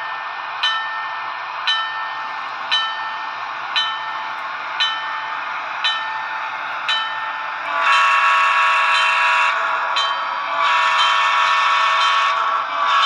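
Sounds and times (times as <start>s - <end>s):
locomotive bell ringing: 0.0s - 13.0s
locomotive engine running: 0.0s - 13.0s
train air horn: 7.7s - 13.0s.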